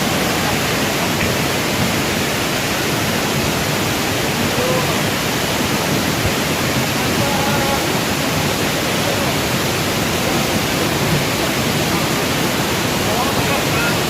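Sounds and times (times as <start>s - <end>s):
waterfall rushing: 0.0s - 14.0s
faint voices: 4.2s - 14.0s.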